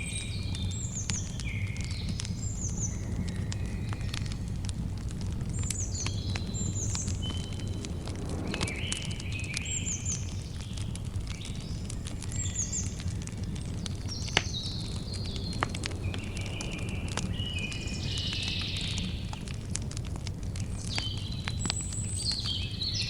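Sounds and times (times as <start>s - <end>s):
campfire crackling and popping: 0.0s - 23.0s
low fire rumble: 0.0s - 23.0s
birds chirping: 5.5s - 19.4s.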